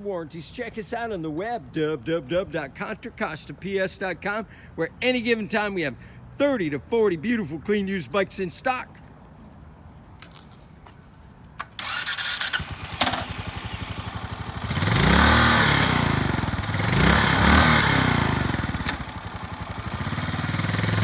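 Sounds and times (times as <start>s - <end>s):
motorcycle starter cranking: 11.6s - 21.0s
motorcycle engine idling and revving: 11.8s - 21.0s.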